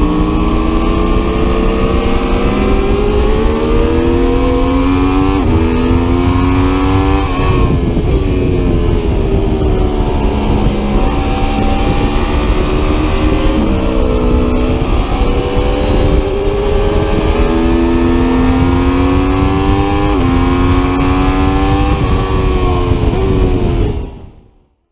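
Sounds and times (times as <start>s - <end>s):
motorcycle engine revving: 0.0s - 24.4s
steady low rumble: 0.0s - 24.6s.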